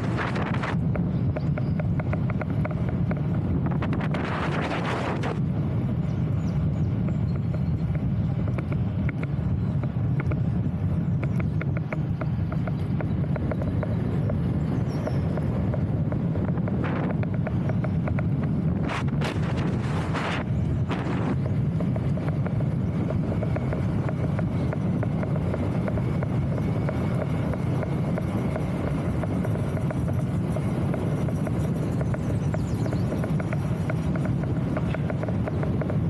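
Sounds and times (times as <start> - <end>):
wind buffeting microphone: 0.0 - 36.0
faint rapid clicks: 7.2 - 36.0.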